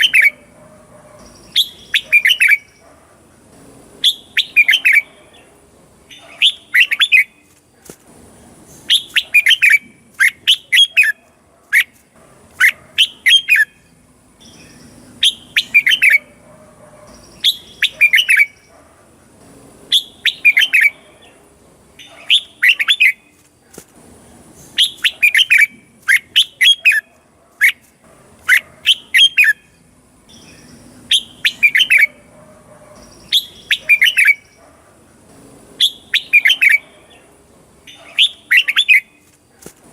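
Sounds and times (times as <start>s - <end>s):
bird singing chirpy phrases: 0.0s - 7.6s, 11.8s - 16.4s, 17.0s - 23.4s, 28.4s - 32.3s, 32.9s - 39.3s.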